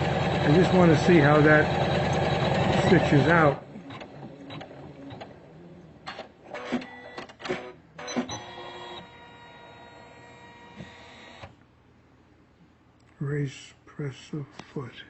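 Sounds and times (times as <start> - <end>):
embroidery machine clattering: 0.0 - 5.3.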